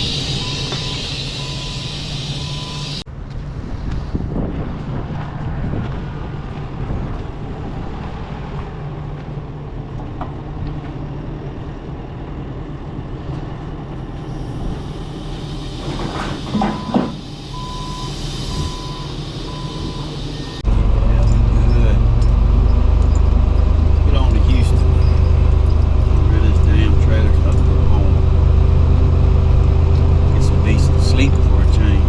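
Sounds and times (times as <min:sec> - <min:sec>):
truck engine and road rumble: 0:00.0 - 0:32.0
short beeps: 0:00.4 - 0:03.0, 0:16.6 - 0:20.6.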